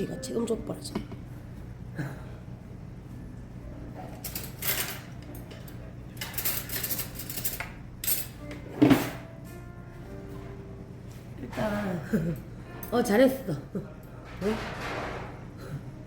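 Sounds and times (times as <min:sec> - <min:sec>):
low background hum: 0:00.0 - 0:16.0
dishes and utensils clattering: 0:04.0 - 0:09.3, 0:14.1 - 0:15.5.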